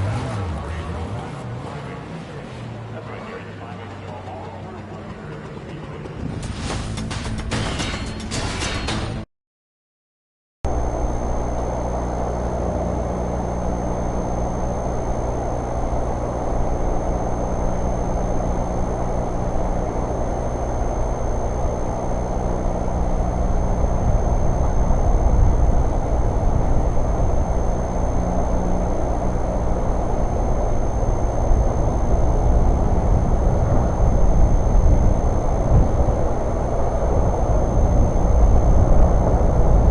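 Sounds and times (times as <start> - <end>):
vehicle engine rumbling: 0.0 - 7.4, 10.7 - 39.9
low buffeting: 10.7 - 39.9.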